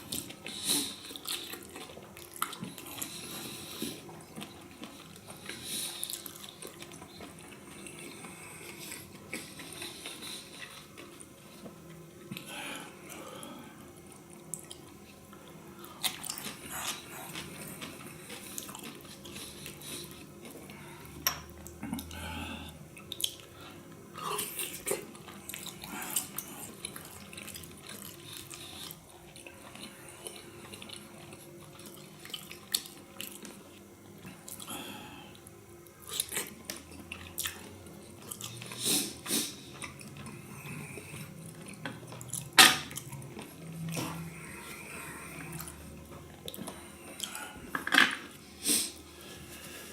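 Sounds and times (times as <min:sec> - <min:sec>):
wet chewing and mouth smacks: 0:00.1 - 0:12.5, 0:23.0 - 0:23.5, 0:24.4 - 0:34.7, 0:35.8 - 0:40.4.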